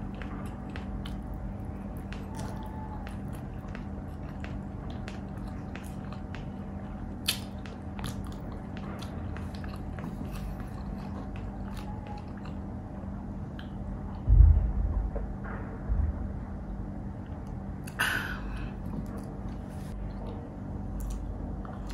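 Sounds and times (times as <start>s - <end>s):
person chewing food: 0.0s - 13.9s, 17.3s - 21.9s
low hum: 0.0s - 21.9s
wet mouth clicks and smacks: 7.2s - 12.5s.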